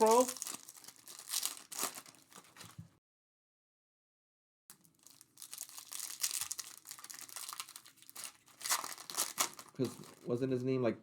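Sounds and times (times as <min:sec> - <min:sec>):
foil wrappers crinkling and tearing: 0:00.0 - 0:02.8, 0:04.7 - 0:10.4.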